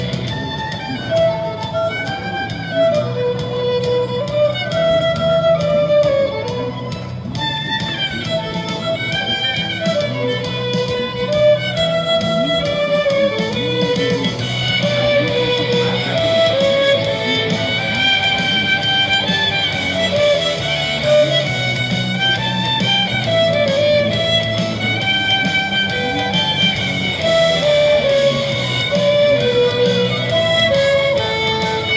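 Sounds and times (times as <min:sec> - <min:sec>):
low accompaniment with steady beat: 0:00.0 - 0:31.9
violin playing slow melody: 0:00.0 - 0:31.9.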